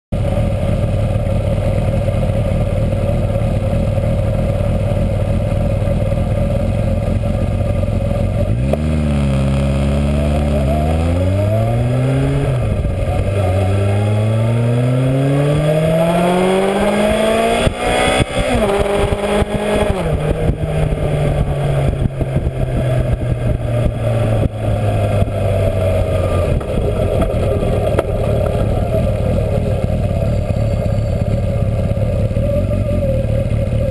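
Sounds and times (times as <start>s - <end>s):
motorcycle engine accelerating: 0.1s - 33.9s
wind and road noise: 0.2s - 33.9s.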